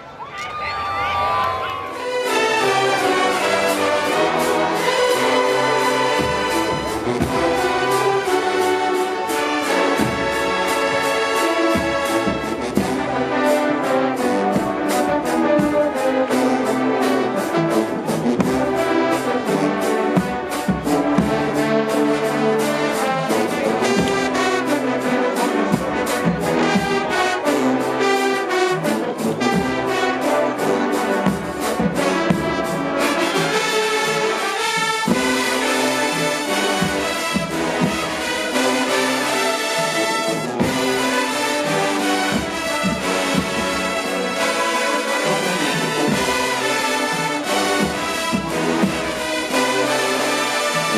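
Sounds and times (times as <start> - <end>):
marching band brass: 0.0 - 50.9
drum beat: 2.1 - 16.0, 29.4 - 33.7, 34.5 - 50.9.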